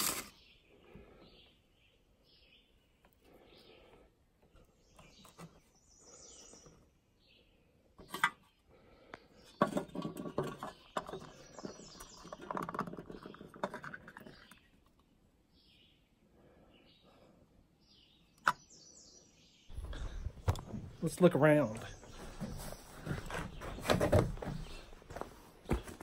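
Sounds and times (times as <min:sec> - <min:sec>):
birds chirping: 0:00.0 - 0:26.0
metal tin rattling and scraping: 0:09.6 - 0:14.6.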